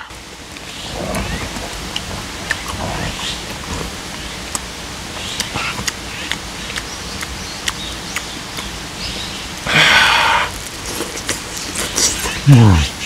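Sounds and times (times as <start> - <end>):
chewing with wet mouth clicks: 0.5 - 9.3, 10.5 - 12.5
stream rushing: 8.7 - 10.9
loud breathy rush: 9.6 - 11.0.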